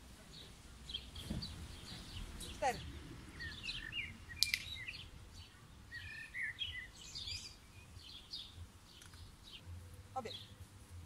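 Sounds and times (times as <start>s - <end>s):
small birds chirping: 0.0s - 11.0s
sharp click: 4.4s - 4.8s.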